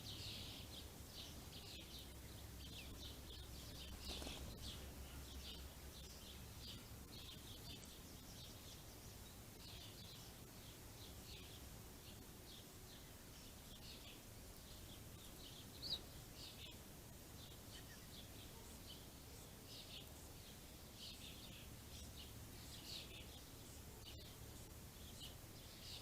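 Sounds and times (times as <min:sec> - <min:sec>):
songbirds chirping: 0:00.0 - 0:26.0.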